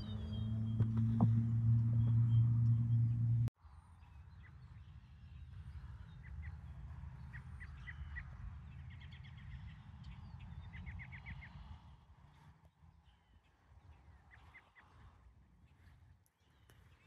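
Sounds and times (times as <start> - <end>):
distant birds calling: 0.0 - 3.5
low steady rumble: 0.0 - 3.5.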